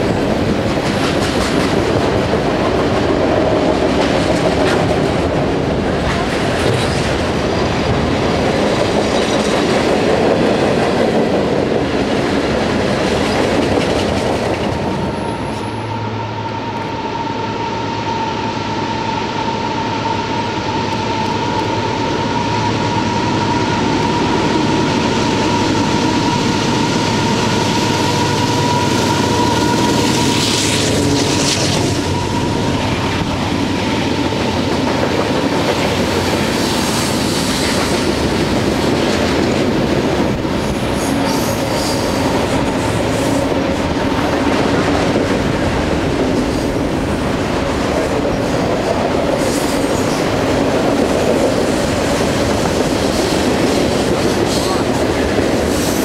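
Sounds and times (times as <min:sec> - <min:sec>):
diesel locomotives passing: 0:00.0 - 0:56.0
freight cars rumbling on rails: 0:00.0 - 0:56.0
train wheels squealing: 0:14.8 - 0:38.5, 0:40.4 - 0:43.9, 0:55.6 - 0:56.0.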